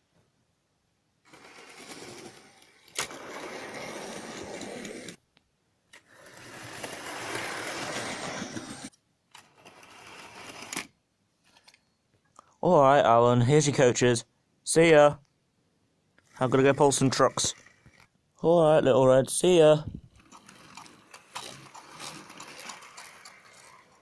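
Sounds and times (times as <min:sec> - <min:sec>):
model train motor running: 0:01.3 - 0:05.2, 0:06.0 - 0:08.9, 0:09.6 - 0:10.9, 0:16.3 - 0:18.1, 0:20.1 - 0:24.0.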